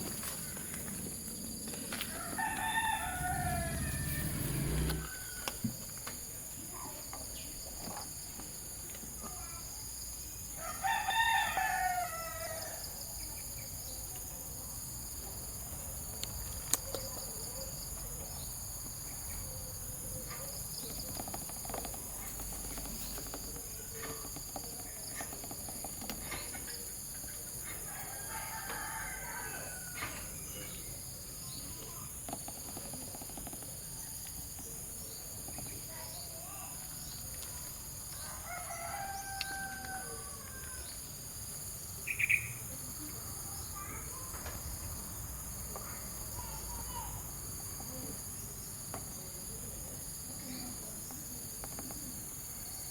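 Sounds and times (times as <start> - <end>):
rooster crowing: 2.0 - 5.6, 10.6 - 12.9, 27.8 - 30.3, 38.1 - 40.9.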